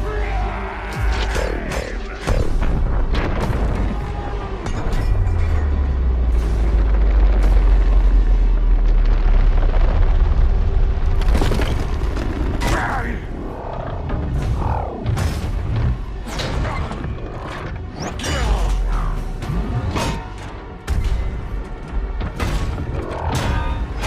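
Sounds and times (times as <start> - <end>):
music: 0.0 - 24.0.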